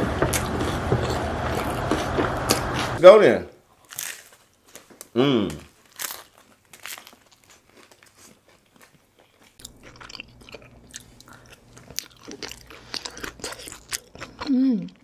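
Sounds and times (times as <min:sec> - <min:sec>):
crunching and chewing: 0:00.1 - 0:03.0, 0:03.8 - 0:15.0.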